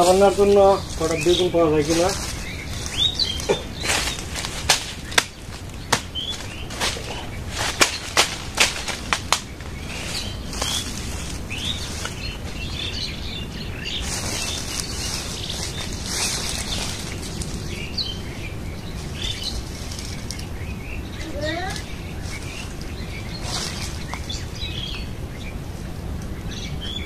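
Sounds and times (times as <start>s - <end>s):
small birds chirping: 0.0s - 27.0s
steady outdoor noise: 0.0s - 27.0s
sharp snaps: 4.4s - 7.0s.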